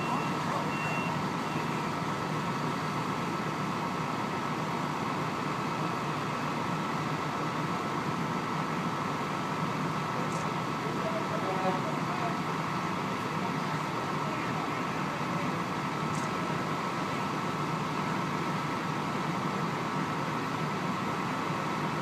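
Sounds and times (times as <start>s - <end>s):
reversing beep: 0.0s - 1.8s
heavy truck engine droning: 0.0s - 22.0s.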